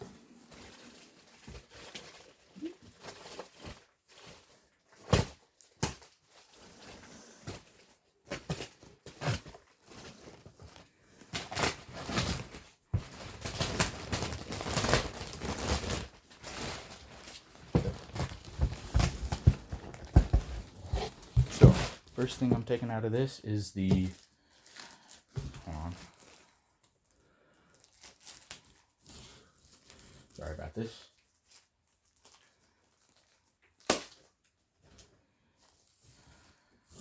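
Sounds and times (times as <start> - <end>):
packaging rustling and crinkling: 0.0 - 36.7
cardboard box knocks and thunks: 17.7 - 22.7.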